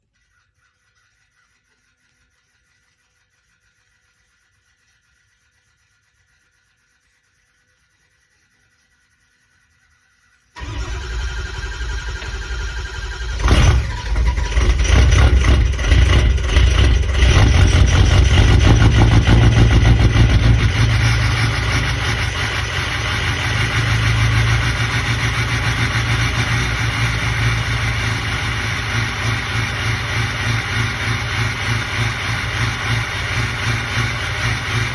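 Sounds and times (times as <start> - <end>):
diesel engine starting and idling: 10.6 - 34.9.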